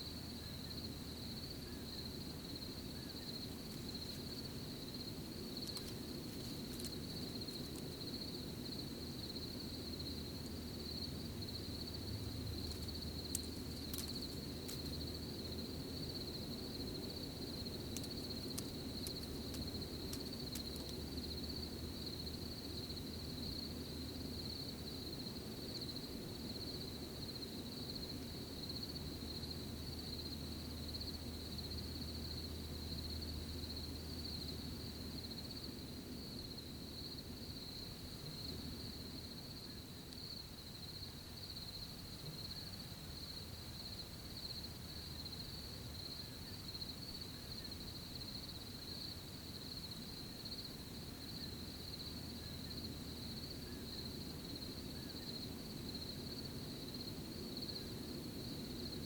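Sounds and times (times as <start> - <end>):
crickets trilling: 0.0 - 59.0
soft outdoor rustle: 0.0 - 59.0.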